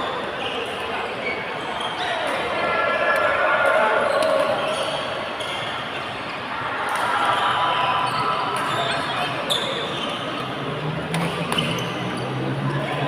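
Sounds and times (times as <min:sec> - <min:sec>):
voices chattering: 0:00.0 - 0:13.0.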